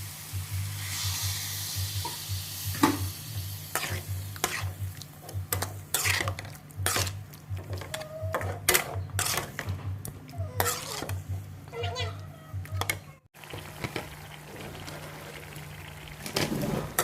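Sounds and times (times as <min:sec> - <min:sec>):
food sizzling in a pan: 0:00.0 - 0:07.2, 0:13.4 - 0:17.0
spatula scraping and knocking pan: 0:03.7 - 0:12.0.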